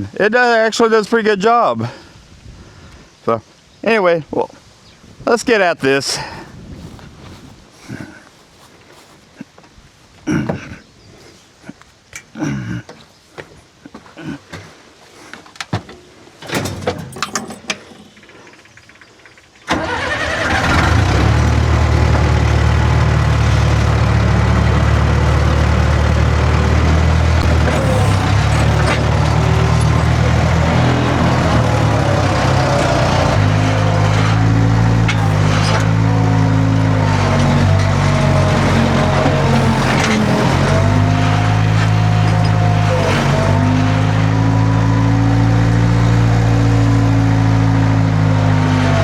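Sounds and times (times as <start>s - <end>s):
clicks and knocks: 15.6s - 18.3s
large engine running: 19.7s - 49.0s.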